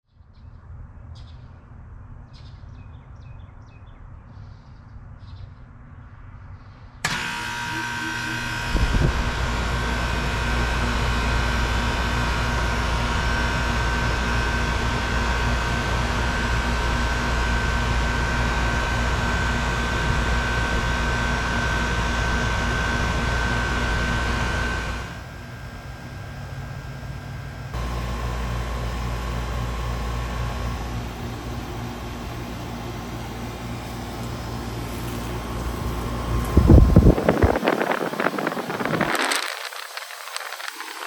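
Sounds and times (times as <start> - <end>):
heat pump running: 7.0 - 39.5
deeper hum: 7.0 - 39.8
high whine: 7.0 - 41.0.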